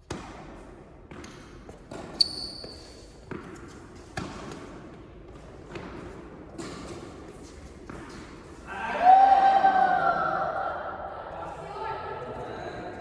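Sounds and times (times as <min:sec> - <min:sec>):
tennis balls struck by rackets: 0:00.0 - 0:02.2, 0:03.2 - 0:08.5
tennis balls bouncing on court: 0:00.0 - 0:08.6.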